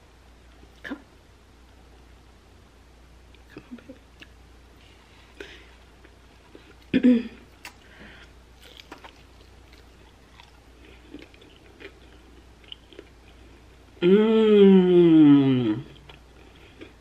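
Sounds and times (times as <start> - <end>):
wet chewing: 8.6 - 13.4
person humming: 14.0 - 16.1.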